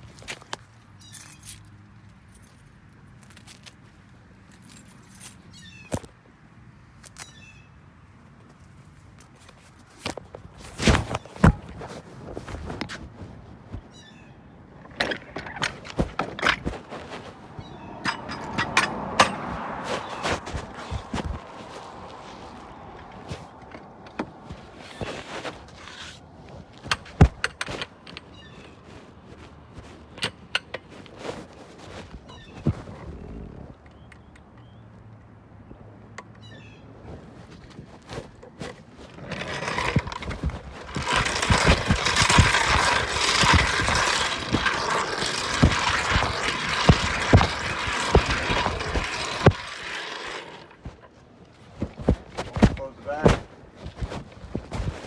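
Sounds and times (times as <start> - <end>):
knocks and thumps: 14.8 - 26.1, 26.8 - 28.2, 39.1 - 51.1, 51.7 - 55.0.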